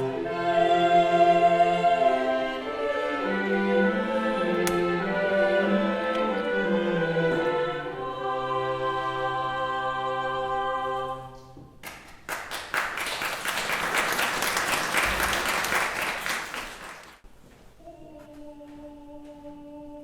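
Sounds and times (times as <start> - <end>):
choir singing held chord: 0.0 - 11.5
audience applause: 11.8 - 17.2.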